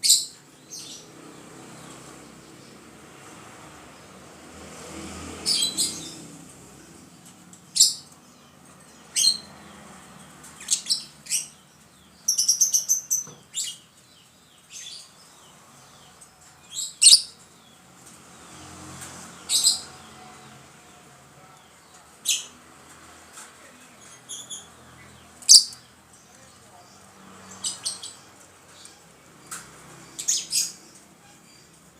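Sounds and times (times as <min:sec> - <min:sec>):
lovebird shrill calls: 0:25.5 - 0:25.8.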